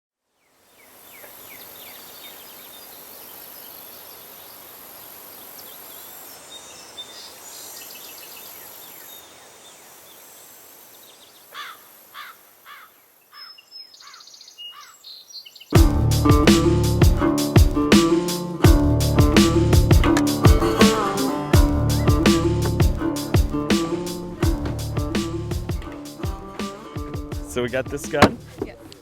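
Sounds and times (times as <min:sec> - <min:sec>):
insect drone: 0:00.7 - 0:13.2
small bird chirps: 0:10.9 - 0:15.8.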